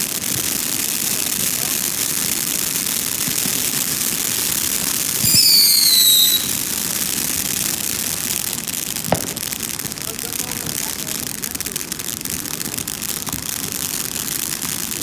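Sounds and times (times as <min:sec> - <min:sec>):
whistling firework: 0:00.0 - 0:08.3
fireworks crackling: 0:00.0 - 0:15.0
sharp firework bang: 0:05.2 - 0:06.9, 0:09.1 - 0:09.4.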